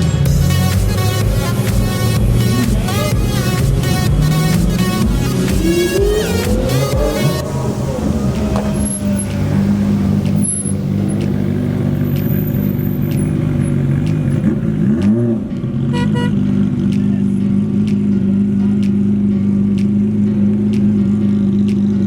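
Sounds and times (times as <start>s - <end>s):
car engine idling and revving: 0.0s - 22.0s
short horn-like beep: 15.9s - 16.4s.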